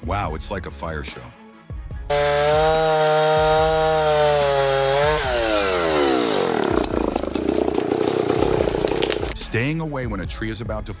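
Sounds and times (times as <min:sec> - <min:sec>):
chainsaw cutting wood: 0:02.1 - 0:09.4.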